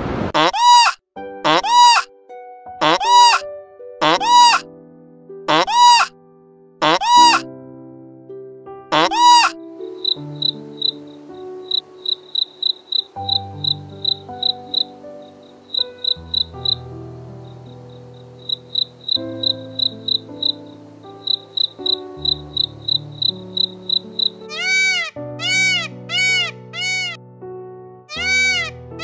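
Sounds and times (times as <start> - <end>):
short bleat-like call: 0.4 - 2.0, 2.8 - 3.4, 4.0 - 4.6, 5.5 - 6.1, 6.8 - 7.4, 8.9 - 9.5
soft background music: 1.2 - 29.0
crickets chirping: 9.8 - 25.0.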